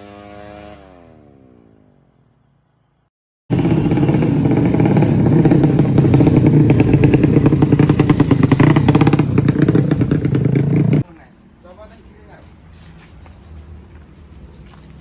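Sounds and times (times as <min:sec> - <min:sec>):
racing motorcycle engine running: 0:03.5 - 0:11.0.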